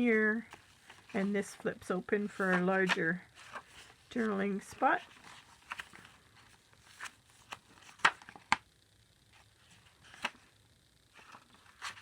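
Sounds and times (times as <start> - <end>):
paper rustling and flicking: 2.2 - 8.6, 9.4 - 10.5, 11.1 - 12.0.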